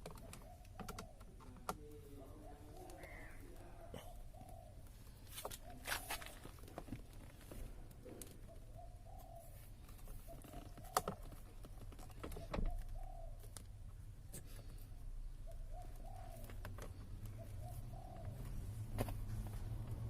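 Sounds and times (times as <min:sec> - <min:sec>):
low bird calls: 0:00.0 - 0:20.0.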